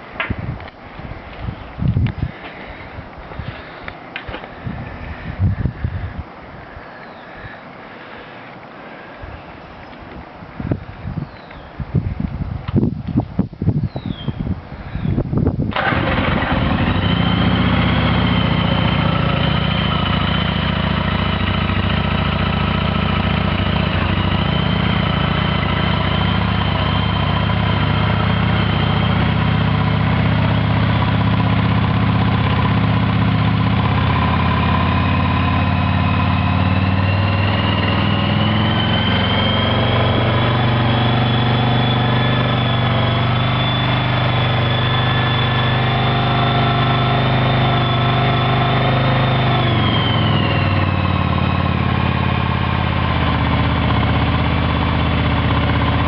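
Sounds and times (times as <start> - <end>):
motorcycle engine starting and idling: 15.6 - 56.0.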